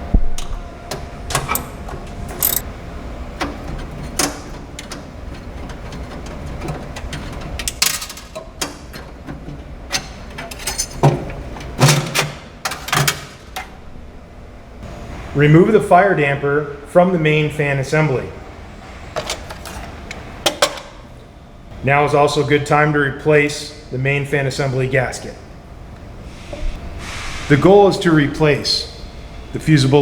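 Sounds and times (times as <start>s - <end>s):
hand tools and metal parts clicking: 1.3s - 2.7s, 3.4s - 13.7s, 19.2s - 20.9s.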